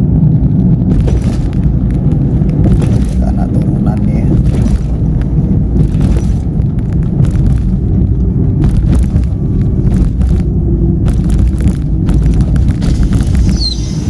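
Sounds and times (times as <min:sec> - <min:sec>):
engine and tyre rumble: 0:00.0 - 0:14.0.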